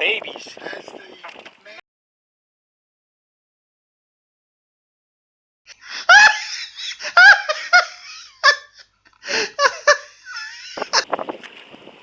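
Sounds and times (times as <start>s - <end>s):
person laughing loudly: 5.7s - 11.1s.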